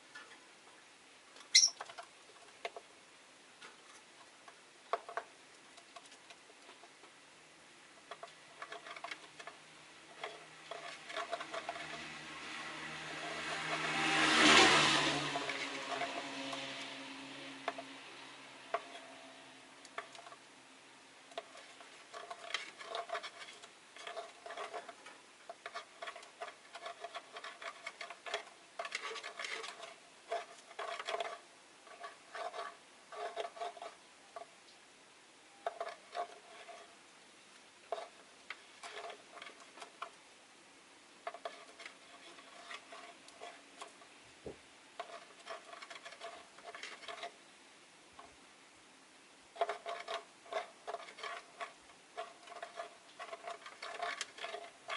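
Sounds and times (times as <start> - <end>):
lovebirds chirping: 1.5 - 1.8.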